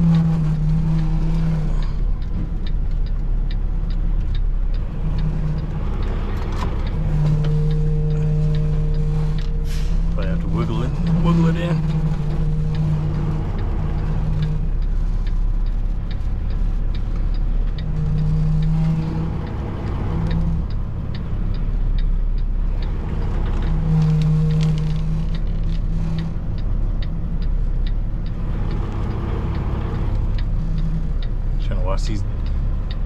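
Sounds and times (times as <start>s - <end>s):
diesel truck engine humming: 0.0s - 33.0s
light regular clicking: 0.1s - 9.8s, 11.0s - 33.0s.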